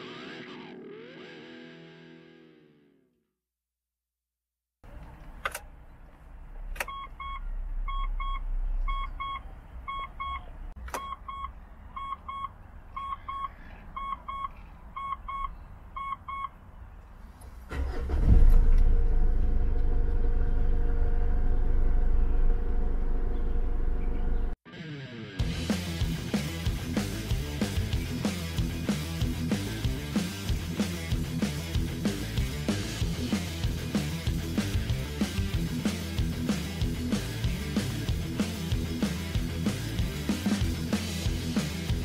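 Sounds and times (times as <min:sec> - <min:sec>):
dashboard warning chime beeping: 0:06.8 - 0:16.5
car engine starting and idling: 0:17.7 - 0:24.6.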